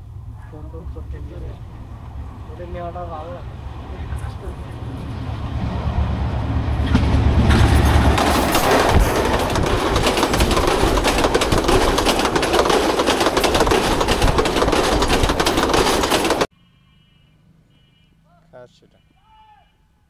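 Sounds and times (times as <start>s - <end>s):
diesel locomotive engine humming: 0.0s - 16.5s
train wheels clattering on rails: 6.8s - 16.5s.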